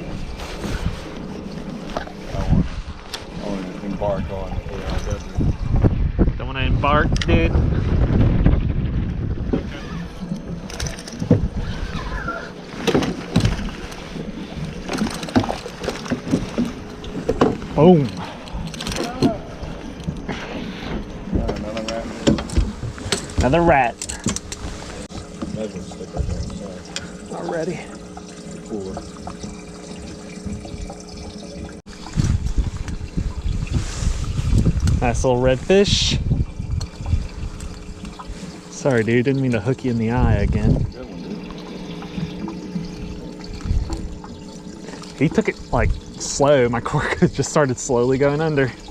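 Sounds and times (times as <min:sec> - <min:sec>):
water trickling and splashing: 0:00.0 - 0:05.8, 0:09.0 - 0:48.9
wind buffeting microphone: 0:00.0 - 0:12.6, 0:30.4 - 0:47.5.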